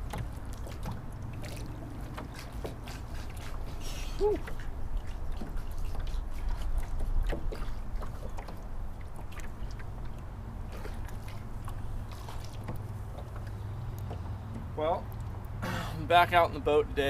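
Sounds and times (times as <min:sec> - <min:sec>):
low boat engine rumble: 0:00.0 - 0:17.0.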